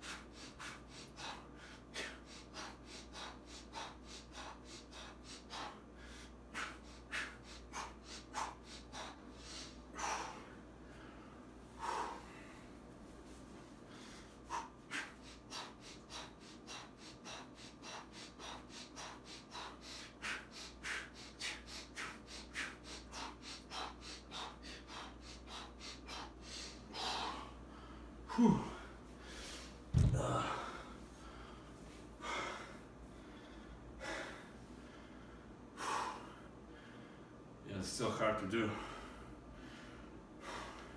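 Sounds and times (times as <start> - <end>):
man breathing hard: 0.0 - 37.6, 38.6 - 40.9
man groaning: 28.3 - 28.8, 30.0 - 30.8
low thump: 29.9 - 30.4.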